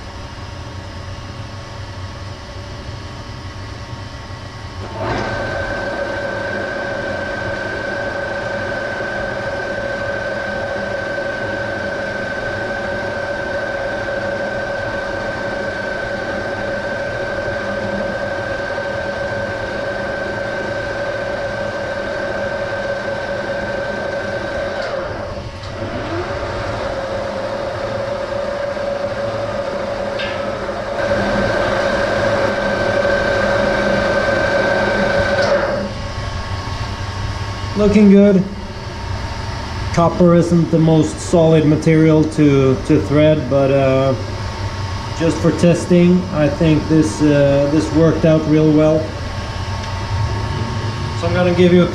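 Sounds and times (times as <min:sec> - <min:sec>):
steady whine: 0:00.0 - 0:51.9
metal lathe cutting thread: 0:04.8 - 0:36.0, 0:45.1 - 0:51.9.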